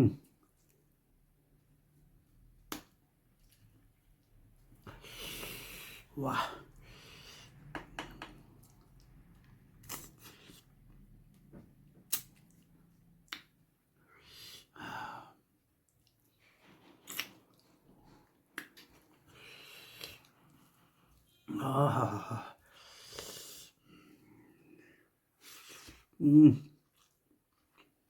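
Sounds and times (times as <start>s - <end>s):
person chewing: 8.4s - 11.0s, 12.0s - 13.5s, 16.8s - 20.7s, 26.8s - 28.0s
sharp mouth clicks: 12.1s - 12.3s.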